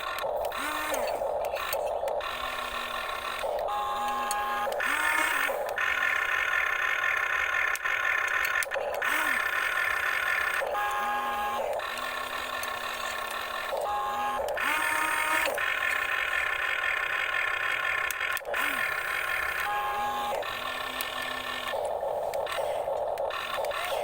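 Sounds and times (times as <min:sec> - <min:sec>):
small electric motors whirring: 0:00.0 - 0:24.0.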